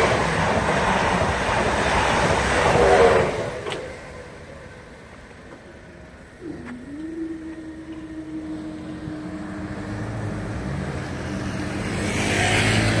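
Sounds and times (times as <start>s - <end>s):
steady whine: 1.2s - 11.7s
vehicle engine passing by: 8.3s - 13.0s.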